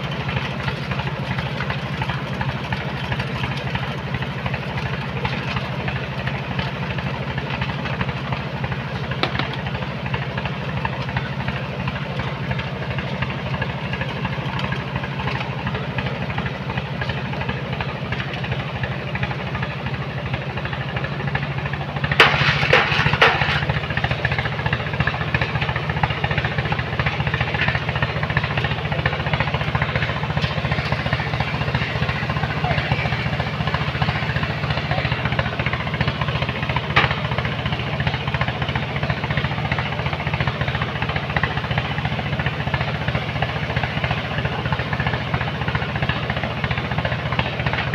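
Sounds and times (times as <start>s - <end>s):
machine engine running: 0.0s - 47.9s
loud clattering burst: 22.1s - 24.0s.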